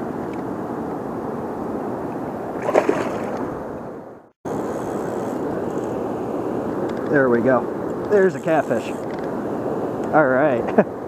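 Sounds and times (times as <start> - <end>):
river water rushing: 2.6 - 3.8.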